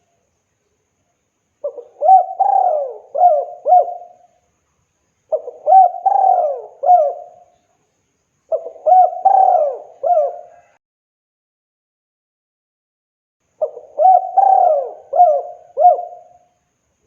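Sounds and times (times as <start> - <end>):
dove cooing: 1.6 - 4.3, 5.3 - 7.5, 8.5 - 10.8, 13.6 - 16.5.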